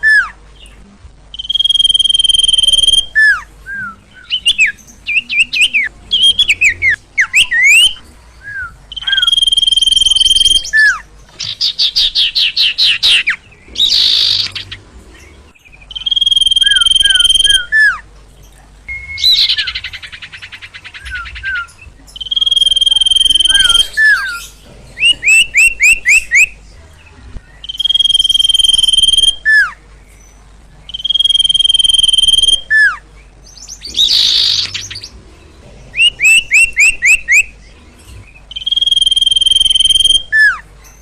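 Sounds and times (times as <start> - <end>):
songbird whistles: 1.3 - 14.7, 15.9 - 18.0, 18.9 - 26.5, 27.6 - 29.8, 30.9 - 33.0, 36.0 - 37.5, 38.5 - 41.0
bird trill: 1.3 - 18.0, 18.9 - 26.6, 27.5 - 41.0
bird chirps: 1.3 - 26.6, 27.4 - 41.0.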